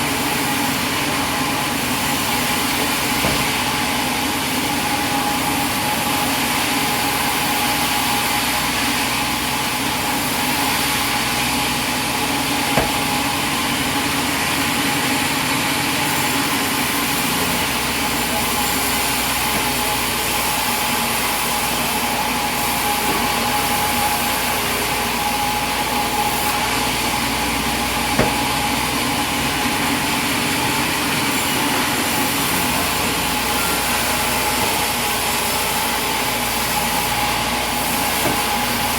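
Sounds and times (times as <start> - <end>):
sawmill machinery whining: 0.0 - 38.9
brief knocks: 12.8 - 13.2, 28.2 - 28.6.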